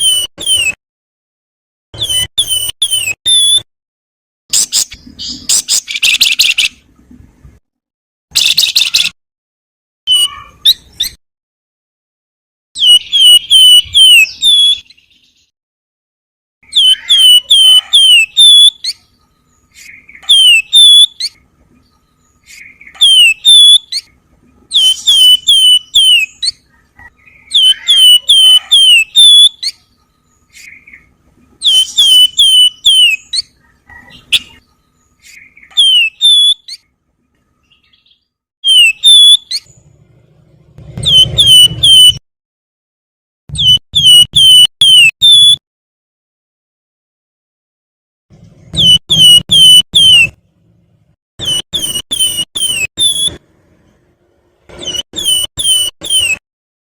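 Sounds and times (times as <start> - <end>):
bird singing whistled notes: 0.0 - 0.8, 2.0 - 3.7, 8.4 - 9.2, 12.8 - 15.5, 16.6 - 33.6, 34.2 - 36.8, 37.7 - 39.8, 41.0 - 42.2, 43.5 - 45.6, 48.8 - 50.4, 51.4 - 53.4, 54.8 - 56.4.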